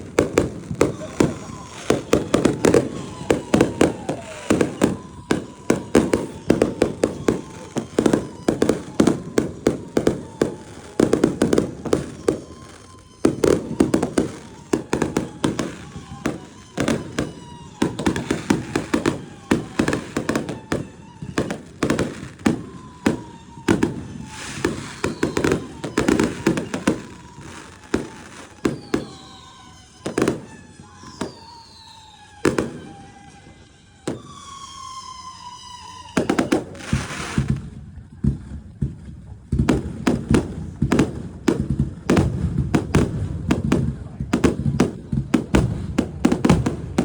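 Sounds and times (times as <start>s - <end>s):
fireworks bangs and crackles: 0.0s - 47.0s
thin whistle-like tone: 22.5s - 37.5s.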